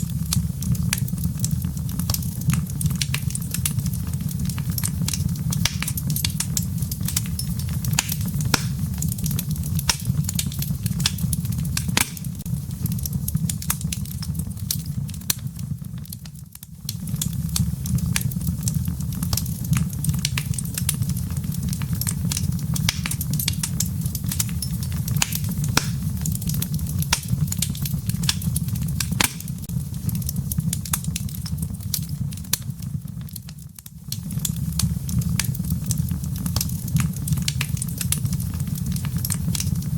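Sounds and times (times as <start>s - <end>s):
fire flames rumbling: 0.0s - 39.9s
logs crackling and popping: 0.0s - 39.9s.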